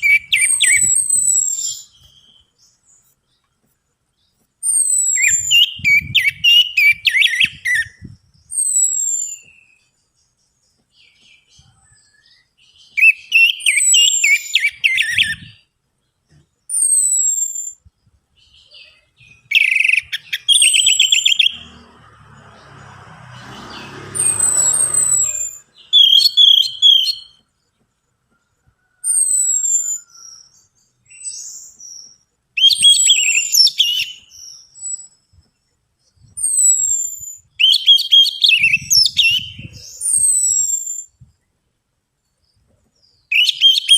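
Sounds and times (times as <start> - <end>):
thrush song whistles and chatter: 19.3 - 21.5.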